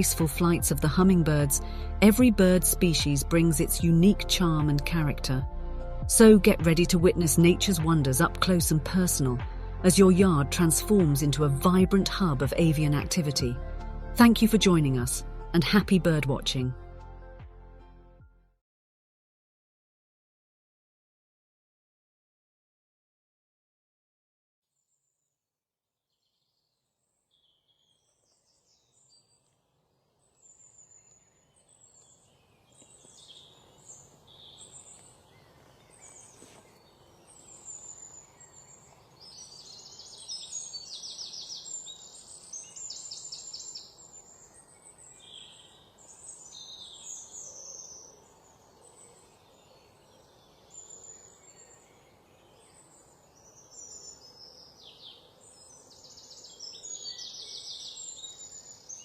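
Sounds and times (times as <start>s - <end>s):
songbirds singing and chirping: 26.2s - 59.0s.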